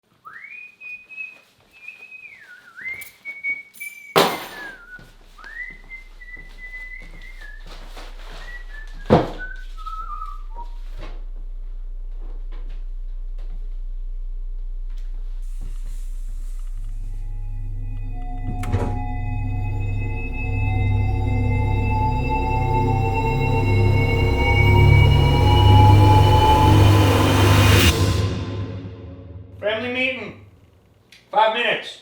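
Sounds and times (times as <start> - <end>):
person whistling a slow tune: 0.2 - 10.9, 17.1 - 28.3
low steady hum: 5.1 - 30.7.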